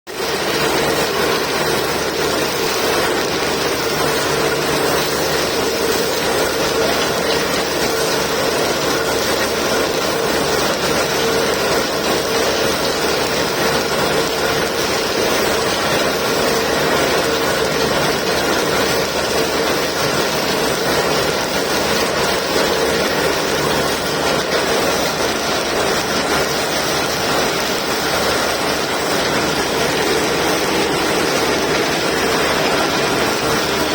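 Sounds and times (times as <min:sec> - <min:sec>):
drilling rig running: 0:00.1 - 0:33.9.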